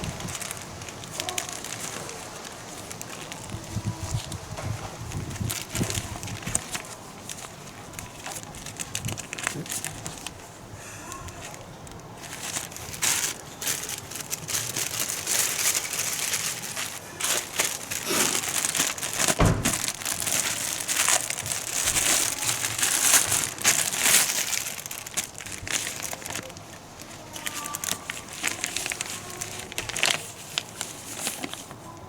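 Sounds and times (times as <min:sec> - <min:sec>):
crinkling and rustling: 0:00.0 - 0:32.0
low knock: 0:19.4 - 0:19.9.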